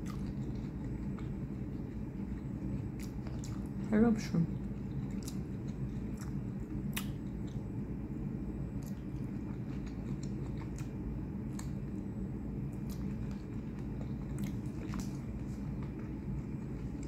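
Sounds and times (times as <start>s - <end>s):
chewing and biting shrimp: 0.0s - 7.8s, 8.6s - 17.0s
steady low hum: 0.0s - 17.0s
wet mouth clicks: 5.0s - 7.6s.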